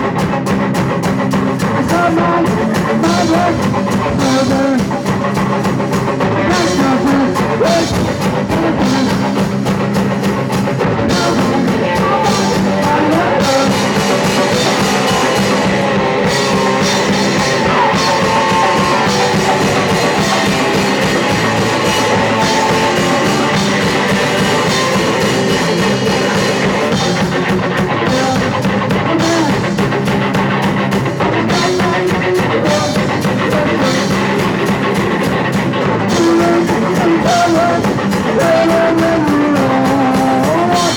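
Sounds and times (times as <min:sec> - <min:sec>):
distorted electric guitar: 0:00.0 - 0:40.9
pounding drum kit: 0:00.0 - 0:40.9.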